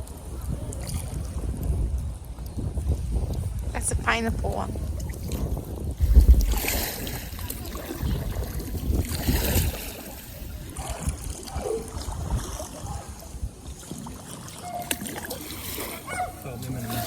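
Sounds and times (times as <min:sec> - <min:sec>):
water splashing around kayak: 0:00.0 - 0:17.0
low rumble: 0:03.6 - 0:11.4.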